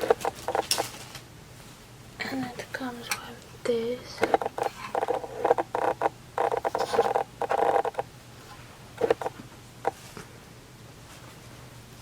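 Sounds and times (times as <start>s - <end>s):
plastic packaging rustling: 0.0s - 1.3s.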